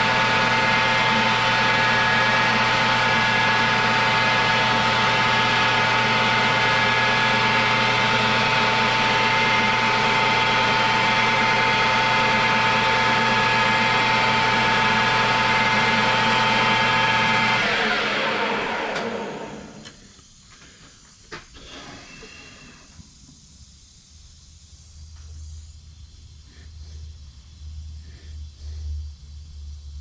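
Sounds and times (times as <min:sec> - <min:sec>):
machine spinning down: 0:00.0 - 0:20.1
machine tool whining: 0:00.0 - 0:20.8, 0:21.4 - 0:23.1.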